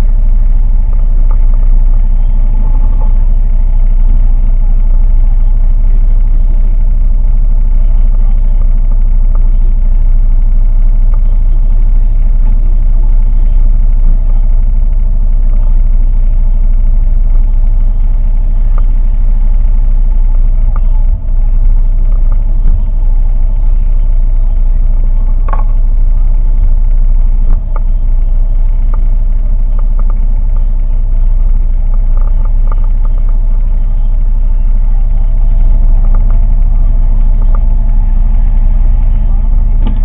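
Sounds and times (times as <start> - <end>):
boat motor droning: 0.0 - 40.0
faint clicks: 29.7 - 30.8.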